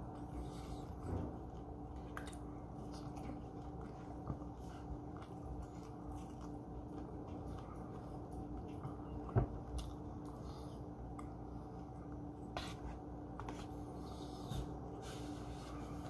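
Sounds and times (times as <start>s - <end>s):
person chewing food: 0.0s - 12.5s
faint steady hum: 0.0s - 16.0s.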